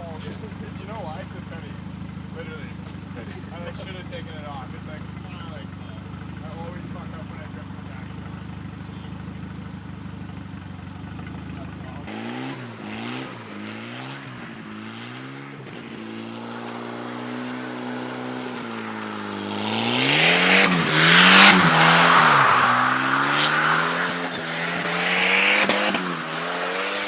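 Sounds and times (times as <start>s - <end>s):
tyres squealing: 0.0s - 13.6s, 18.6s - 26.1s
car engine revving: 0.0s - 27.0s.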